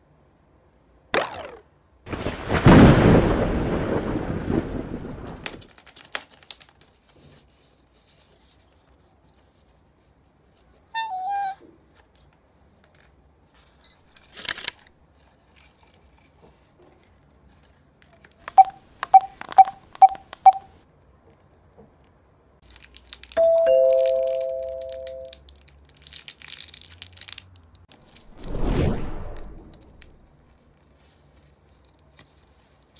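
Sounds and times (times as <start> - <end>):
plastic packaging crinkling and tearing: 5.3 - 9.6, 14.2 - 16.4, 22.6 - 28.3, 29.7 - 32.9
electronic beeps: 18.6 - 20.7.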